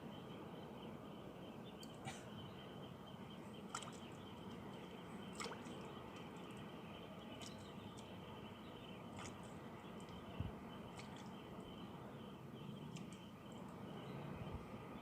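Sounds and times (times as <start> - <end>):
water dripping and lapping: 3.5 - 11.9, 12.9 - 13.8.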